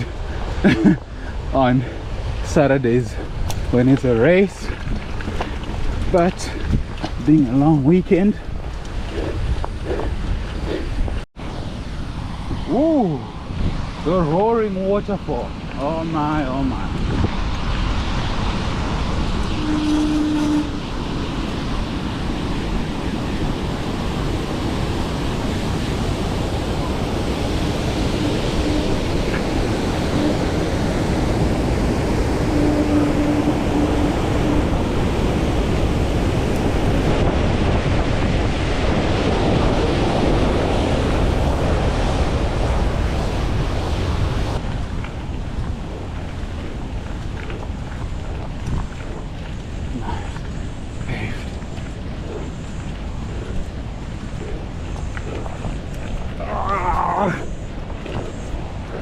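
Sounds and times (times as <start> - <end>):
wind buffeting microphone: 0.0 - 59.0
waterfall roaring: 18.6 - 37.3, 48.2 - 59.0.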